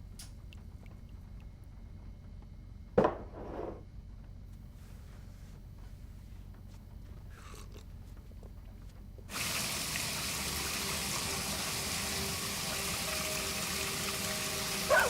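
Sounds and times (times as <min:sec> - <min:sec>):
bath tap water running: 0:09.3 - 0:15.0.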